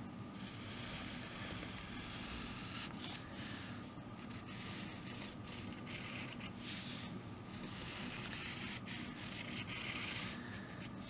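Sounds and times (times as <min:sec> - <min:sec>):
faint low hum: 0:00.0 - 0:11.0
pencil scratching on paper: 0:00.4 - 0:11.0.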